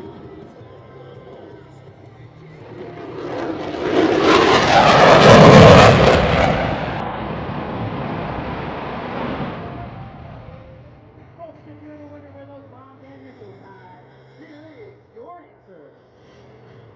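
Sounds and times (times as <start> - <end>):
jet engines passing overhead: 2.4 - 11.3.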